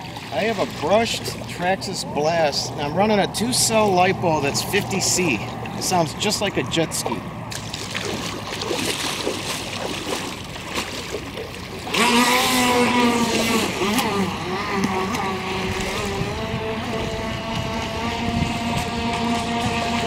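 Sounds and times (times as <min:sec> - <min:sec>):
electric motor whine: 0:11.7 - 0:20.0.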